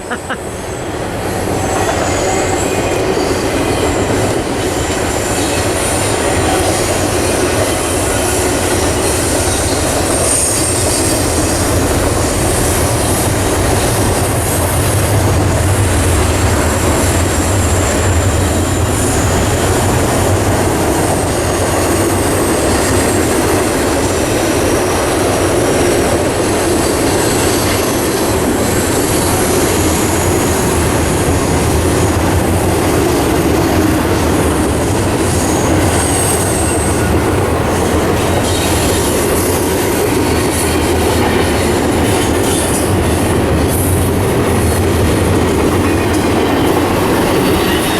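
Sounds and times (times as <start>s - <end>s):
train wheels rumbling on rails: 0.0s - 47.9s
high wheel squeals: 0.4s - 15.2s, 35.1s - 44.0s.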